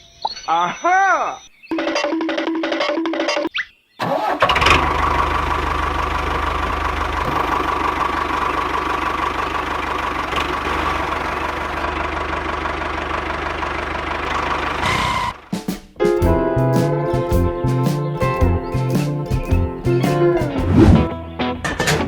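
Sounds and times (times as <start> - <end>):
engine whine: 4.4 - 15.5
small diesel engine knocking: 4.5 - 15.5.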